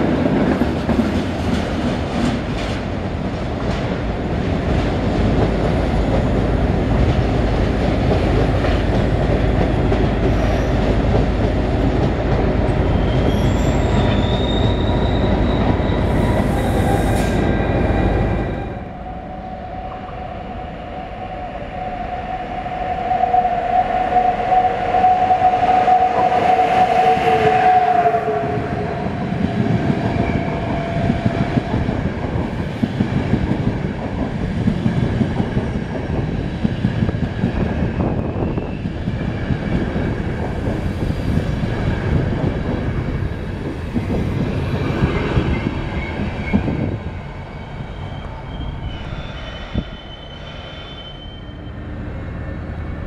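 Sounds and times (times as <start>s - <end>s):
passenger coaches rumbling past: 0.0s - 53.0s
two-note locomotive horn: 23.0s - 29.2s.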